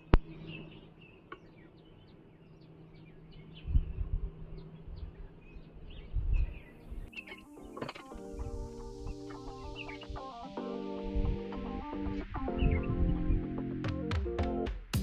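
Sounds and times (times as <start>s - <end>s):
small birds chirping: 0.0s - 14.1s.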